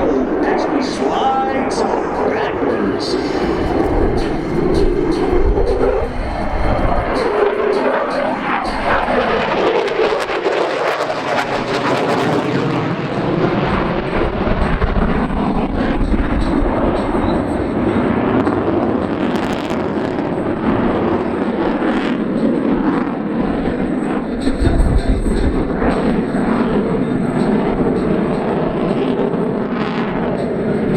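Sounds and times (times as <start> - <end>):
jet engine roar: 0.0 - 30.9.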